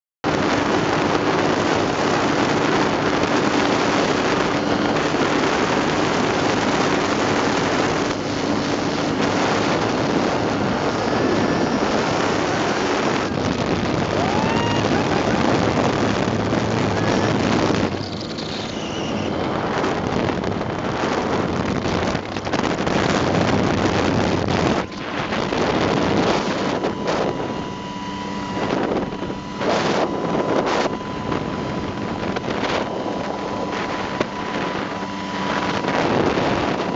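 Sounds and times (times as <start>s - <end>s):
small airplane engine running: 0.2s - 36.9s
wind rushing over microphone: 0.2s - 36.9s.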